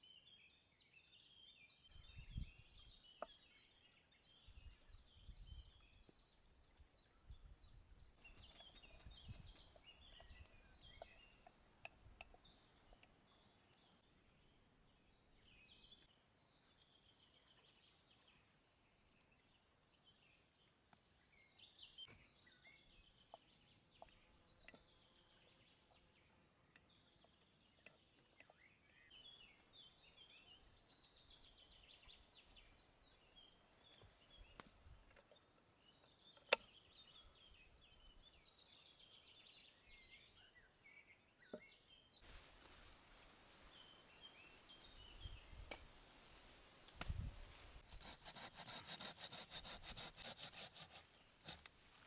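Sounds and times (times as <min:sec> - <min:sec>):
faint birdsong chirping: 0:00.0 - 0:52.0
soft hiss: 0:42.2 - 0:47.9.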